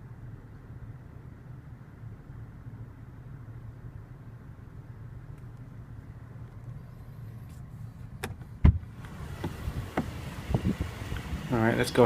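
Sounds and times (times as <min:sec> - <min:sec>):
car cabin hum: 0:00.0 - 0:12.0
outside noise: 0:00.0 - 0:12.0
car door thud: 0:08.2 - 0:10.8.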